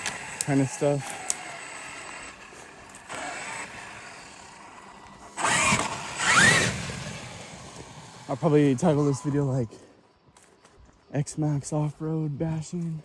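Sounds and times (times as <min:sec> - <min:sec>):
electric motor whining: 0:00.0 - 0:09.9
tyre and ground noise: 0:00.0 - 0:13.0.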